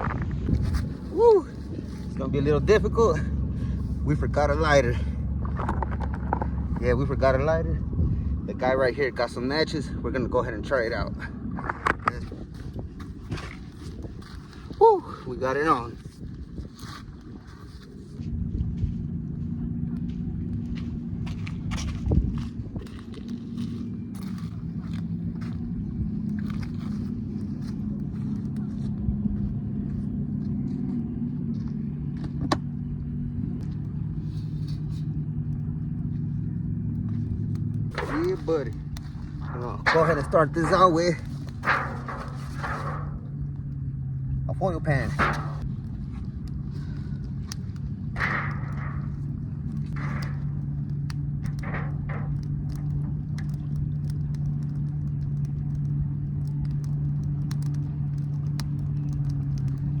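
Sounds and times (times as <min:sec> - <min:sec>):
engine idling: 0:00.0 - 1:00.0
sharp clicks and crackles: 0:05.4 - 0:07.5, 0:19.9 - 0:29.2, 0:32.1 - 1:00.0.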